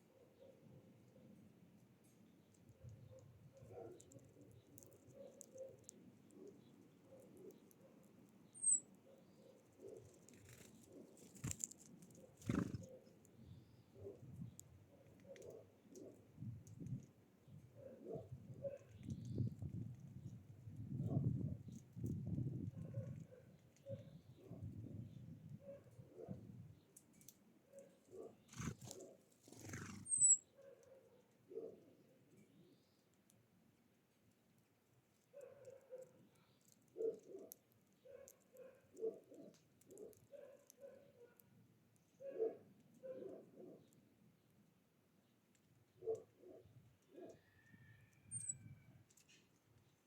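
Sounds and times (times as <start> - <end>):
high bird chirp: 8.5 - 9.5, 29.8 - 30.4
birds soft low calls: 27.8 - 30.4.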